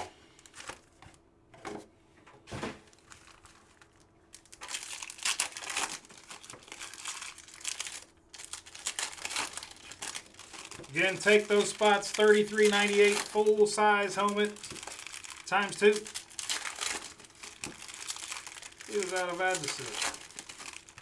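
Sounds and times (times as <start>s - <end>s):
wrappers torn and crinkled: 2.9s - 21.0s.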